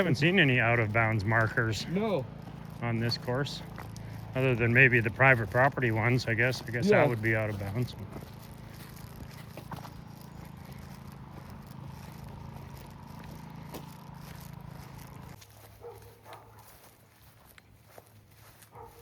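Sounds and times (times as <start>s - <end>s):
low hum: 0.0s - 15.8s.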